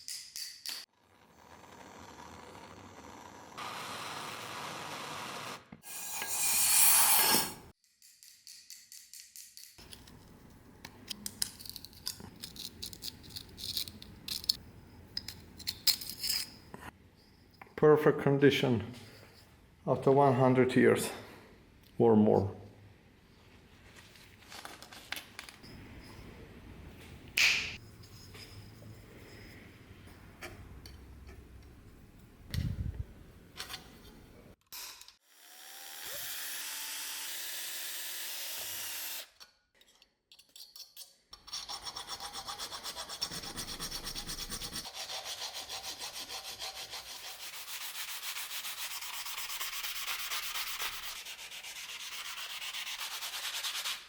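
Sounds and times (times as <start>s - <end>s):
sanding strokes: 5.9s - 7.7s, 41.6s - 54.0s.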